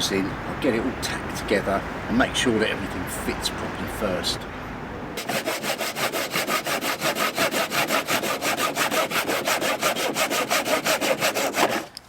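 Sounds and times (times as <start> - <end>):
handsaw cutting wood: 5.2 - 12.0.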